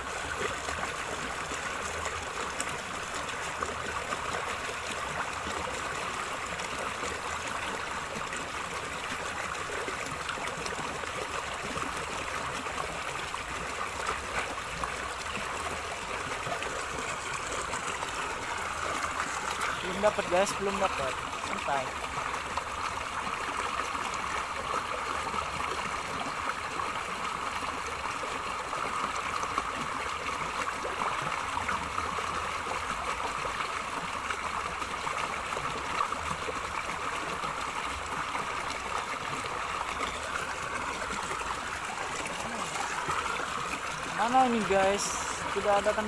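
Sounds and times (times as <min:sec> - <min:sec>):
river water gurgling: 0:00.0 - 0:46.0.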